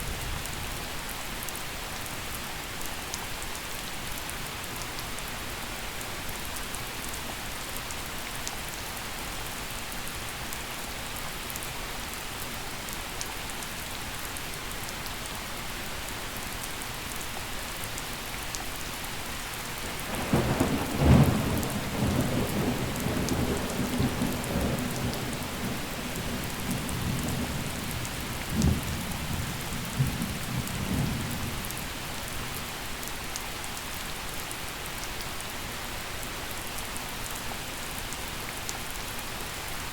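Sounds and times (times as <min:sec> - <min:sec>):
rain hissing on ground: 0:00.0 - 0:39.9
thunder cracking and rumbling: 0:19.8 - 0:31.5.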